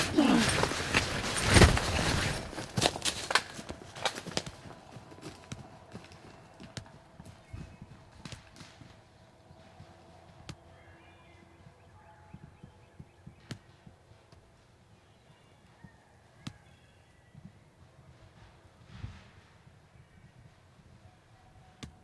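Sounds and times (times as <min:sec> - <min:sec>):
soft thumps and rustles: 0:00.0 - 0:03.7.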